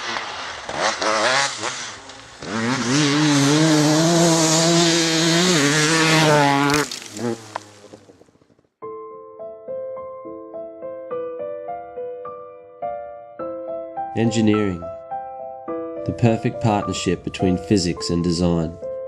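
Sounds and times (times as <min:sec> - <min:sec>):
two-stroke engine revving: 0:00.0 - 0:08.0.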